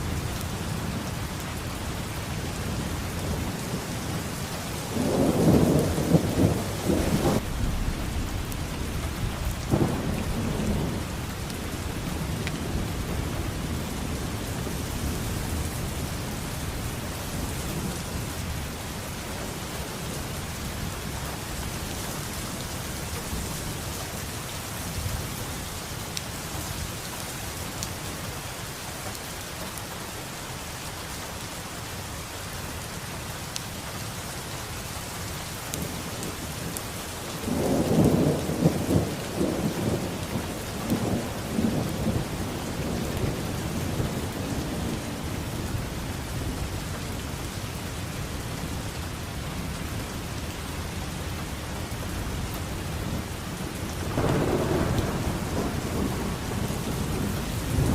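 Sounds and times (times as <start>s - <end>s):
heavy rain falling: 0.0s - 57.9s
thunder rumbling: 2.1s - 21.4s, 35.7s - 46.7s, 51.7s - 57.9s.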